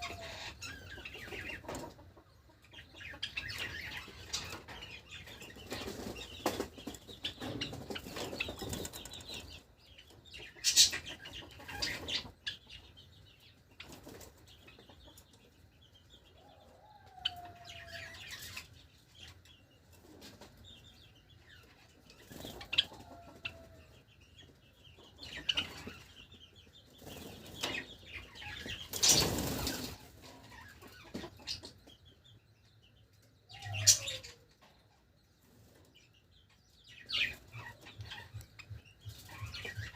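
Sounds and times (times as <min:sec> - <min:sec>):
birds flapping wings: 0:28.9 - 0:30.0.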